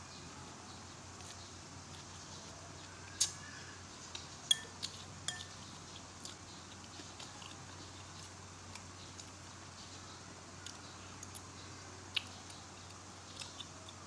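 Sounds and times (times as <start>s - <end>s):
faint background hiss: 0.0s - 14.0s
spoon clinking against bowl: 4.5s - 5.6s.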